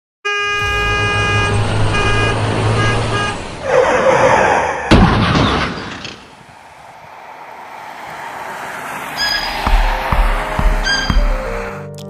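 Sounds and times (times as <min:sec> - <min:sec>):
horn blasts: 0:00.2 - 0:04.0, 0:09.2 - 0:11.8
vehicle engine rumbling: 0:00.4 - 0:11.8
sharp bang: 0:00.6 - 0:03.3
rushing noise: 0:00.6 - 0:05.2, 0:05.9 - 0:11.8.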